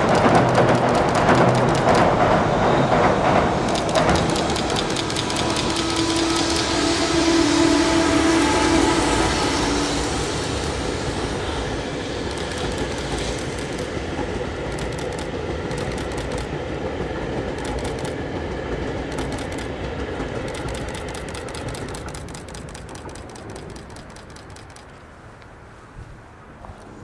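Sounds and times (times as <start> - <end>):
wheel clicks: 0.0 - 2.4, 3.0 - 7.0, 12.2 - 16.8, 17.4 - 25.0
steady tone: 0.0 - 16.6
train wheels rumbling on a bridge: 0.0 - 27.0.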